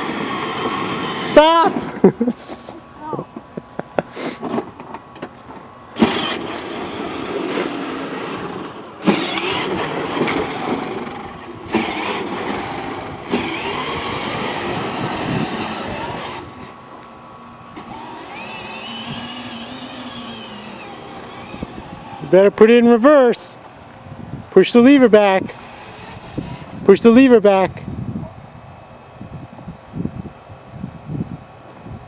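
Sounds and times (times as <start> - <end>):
electric toy motor whining: 0.0 - 1.8, 6.0 - 16.7, 17.8 - 22.3, 25.5 - 26.8
plastic wheels rolling: 0.0 - 2.0, 4.4 - 16.8, 17.8 - 22.3, 25.5 - 26.8.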